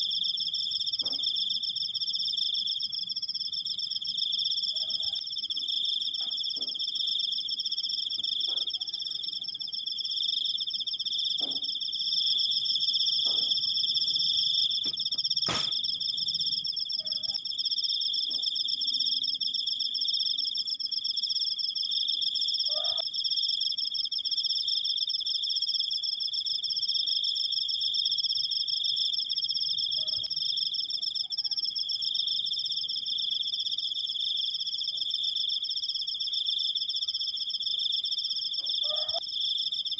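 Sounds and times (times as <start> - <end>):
crickets trilling: 0.0 - 39.9
sharp click: 14.9 - 15.8.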